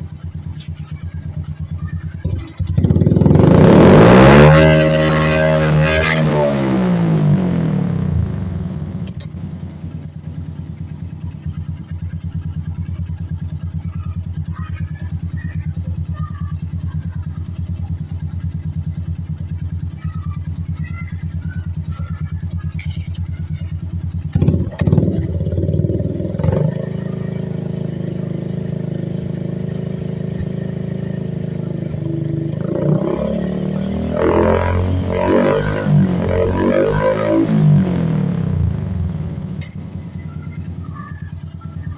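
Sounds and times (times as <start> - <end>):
motorcycle engine idling: 0.0 - 41.9
motorcycle engine revving: 0.0 - 41.9.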